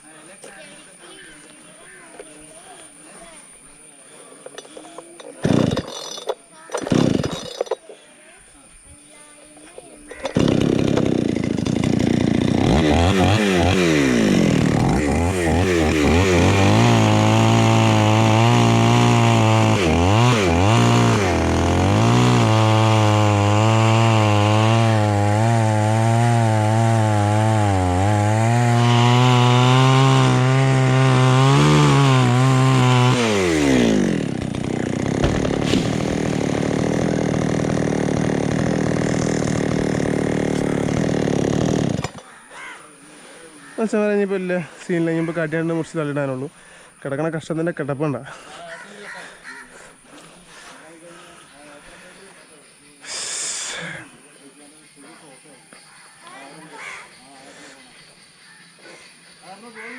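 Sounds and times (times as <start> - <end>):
chainsaw cutting wood: 4.4 - 7.9, 9.6 - 42.4.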